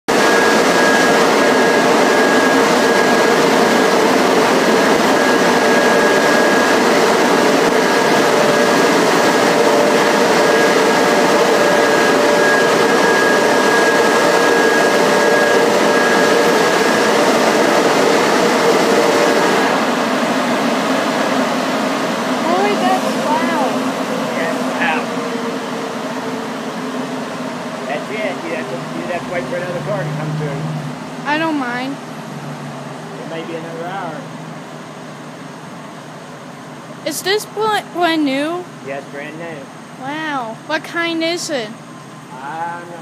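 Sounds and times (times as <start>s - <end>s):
car wash machinery roaring: 0.1s - 43.0s
high whine: 0.1s - 43.0s.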